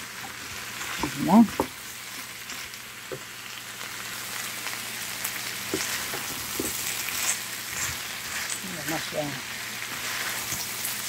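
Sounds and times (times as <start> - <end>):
food sizzling in a frying pan: 0.0 - 11.0
spatula scraping and tapping pan: 5.6 - 8.6.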